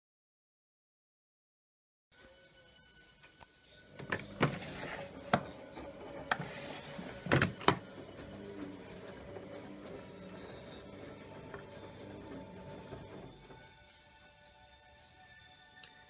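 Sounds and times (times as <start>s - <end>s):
washing machine hum: 3.8s - 15.2s
washing machine clicks and knocks: 7.2s - 8.0s.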